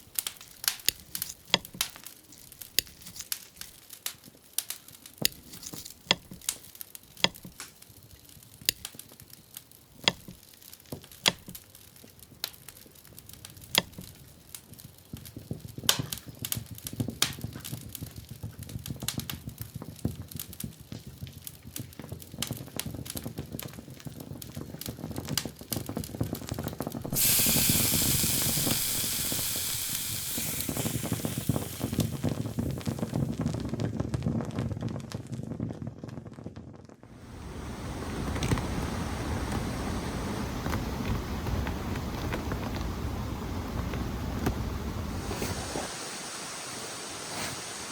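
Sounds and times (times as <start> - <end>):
sharp clicks and crackles: 0.0 - 14.2, 27.1 - 33.7
loud sizzling hiss: 27.0 - 33.5, 37.2 - 47.9.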